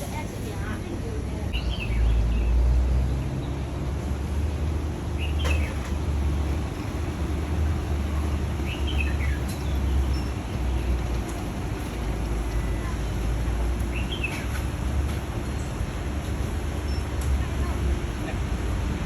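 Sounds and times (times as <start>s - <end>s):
bird chirping: 8.6s - 10.8s.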